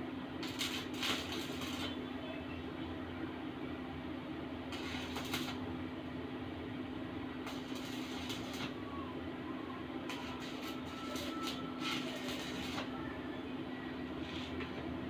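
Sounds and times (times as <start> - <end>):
arc welding machine humming: 0.0 - 15.0
crackling welding arc: 0.4 - 2.0, 4.7 - 5.6, 7.4 - 8.8, 10.1 - 13.0.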